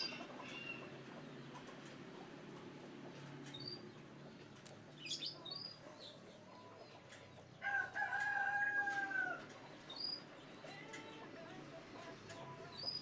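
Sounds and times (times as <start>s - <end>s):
rooster crowing: 7.6s - 9.5s.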